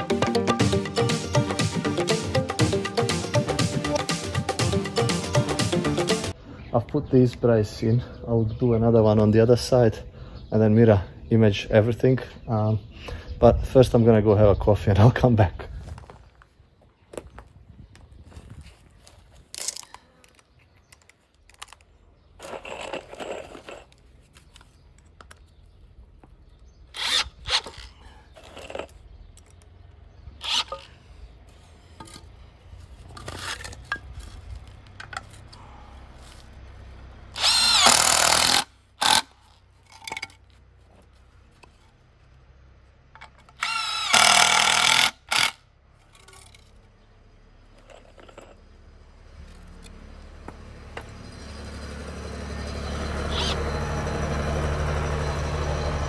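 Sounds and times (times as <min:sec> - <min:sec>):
power drill running: 0:26.9 - 0:27.8, 0:30.4 - 0:30.9, 0:37.3 - 0:39.2, 0:43.5 - 0:45.6.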